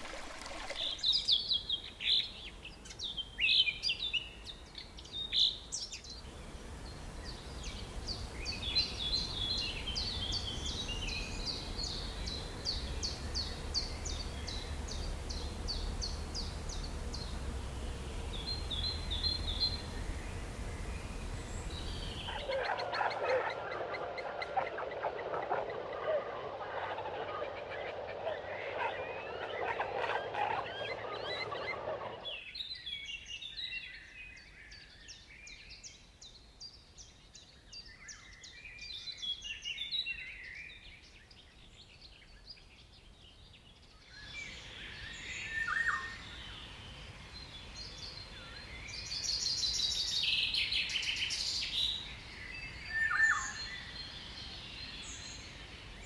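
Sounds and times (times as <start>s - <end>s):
rapid high bird chirping: 21.6s - 32.4s
lower bird chattering: 21.7s - 32.4s
short descending bird calls: 22.0s - 32.6s.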